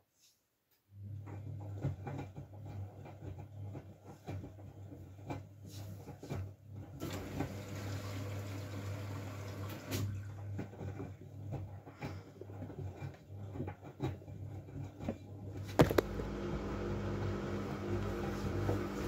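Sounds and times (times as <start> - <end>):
washing machine motor hum: 0.9 - 19.0
soft knocks of tumbling load: 10.5 - 16.2.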